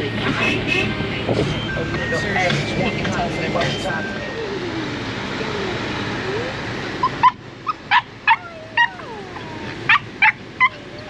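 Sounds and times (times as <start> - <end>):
puppy yelping and whining: 6.2 - 11.0.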